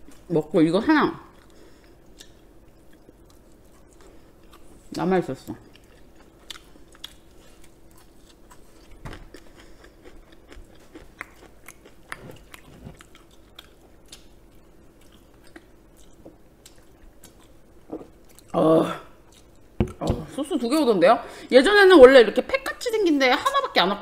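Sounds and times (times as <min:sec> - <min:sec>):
chewing crispy chicken: 0:01.3 - 0:18.6.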